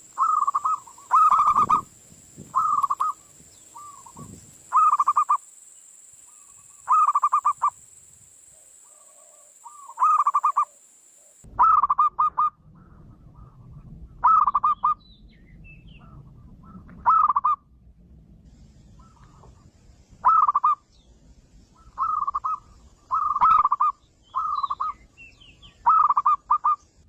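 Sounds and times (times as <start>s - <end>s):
dove cooing: 0.0s - 1.9s, 2.5s - 5.4s, 6.3s - 7.7s, 8.6s - 15.0s, 16.0s - 17.6s, 20.2s - 20.8s, 21.8s - 25.1s, 25.7s - 26.8s.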